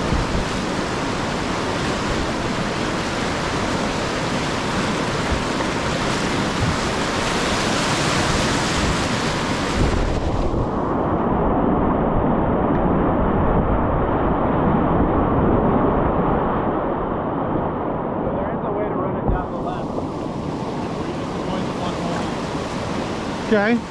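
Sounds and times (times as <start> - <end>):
river rapids rushing: 0.0 - 10.5, 19.2 - 23.9.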